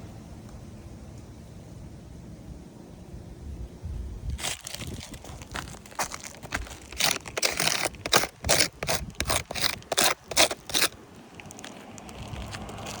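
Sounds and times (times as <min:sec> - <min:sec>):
scraping on roof shingles: 0:04.4 - 0:11.0.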